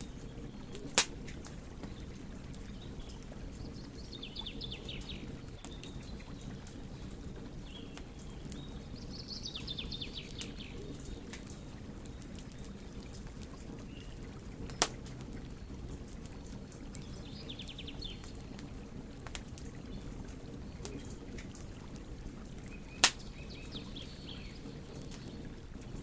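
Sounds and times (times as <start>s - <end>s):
wood fire crackling: 0.0s - 26.0s
sharp fire pop: 0.8s - 1.2s, 14.7s - 15.0s, 23.0s - 23.2s.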